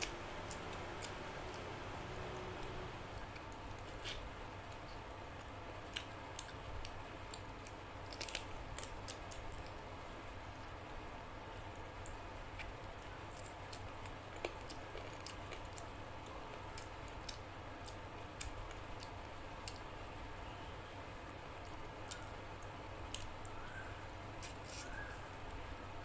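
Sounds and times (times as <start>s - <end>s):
person chewing food: 0.0s - 10.7s, 11.5s - 19.9s
steady low hum: 0.0s - 26.0s.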